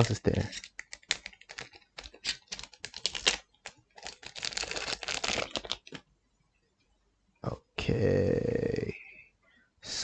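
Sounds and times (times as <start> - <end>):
cards clicking and rustling: 0.0 - 6.0
crinkling wrapper: 0.0 - 6.1.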